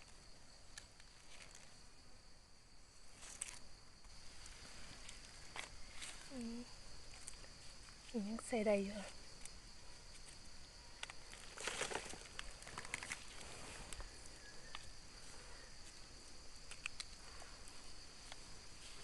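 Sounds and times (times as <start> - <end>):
high-pitched insect drone: 2.9 - 19.0
leaf litter rustling: 11.0 - 14.3.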